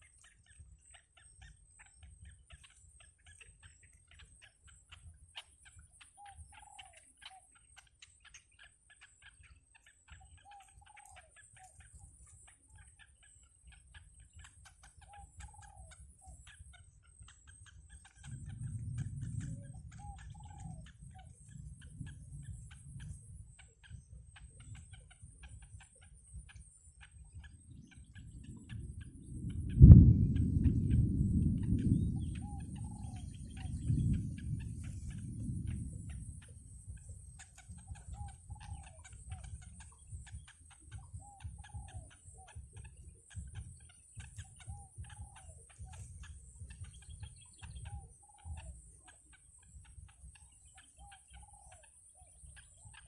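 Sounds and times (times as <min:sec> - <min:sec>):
faint bird calls: 0:00.0 - 0:53.0
low rumble: 0:17.9 - 0:50.8.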